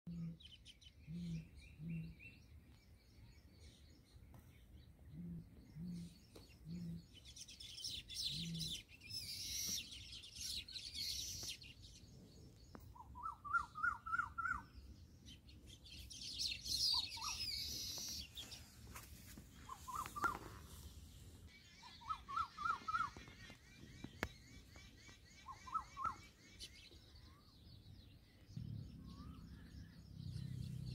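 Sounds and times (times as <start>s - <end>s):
low bird hoots: 13.0s - 14.7s, 19.6s - 20.7s.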